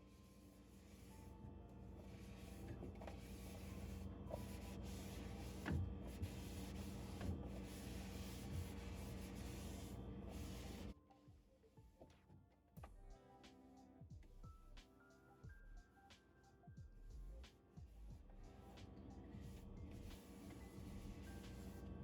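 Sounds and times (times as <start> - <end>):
rubbing and scrubbing: 2.0 - 10.9.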